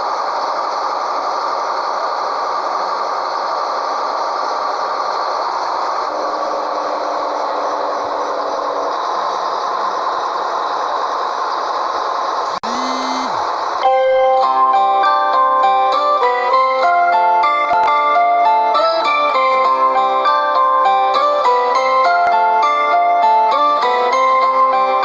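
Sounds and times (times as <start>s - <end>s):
truck engine and road noise: 0.0s - 14.0s.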